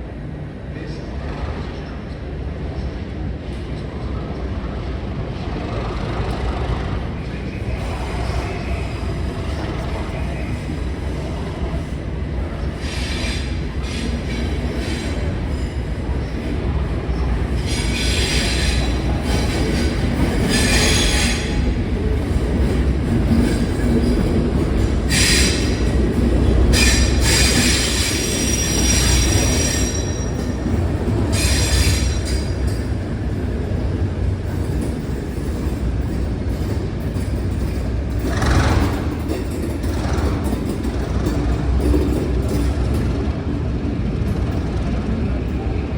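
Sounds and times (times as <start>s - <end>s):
diesel engines rumbling: 0.1s - 45.9s
high-pitched wheel squeals: 26.7s - 32.8s.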